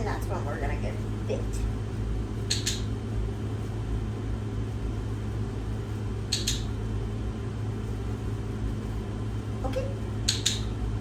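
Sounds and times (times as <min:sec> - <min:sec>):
low hum: 0:00.0 - 0:11.0
short sharp clicks: 0:02.5 - 0:02.9, 0:06.3 - 0:06.7, 0:10.3 - 0:10.7.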